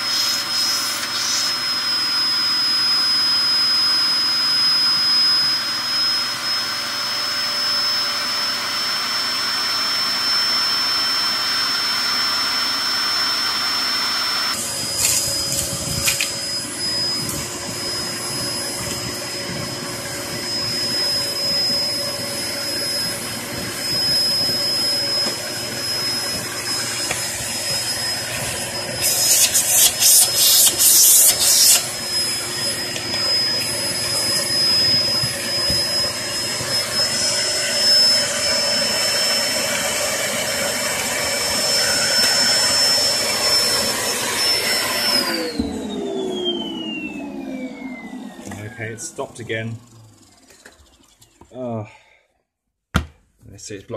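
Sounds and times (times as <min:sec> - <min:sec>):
vacuum cleaner motor whine: 0:00.0 - 0:51.7.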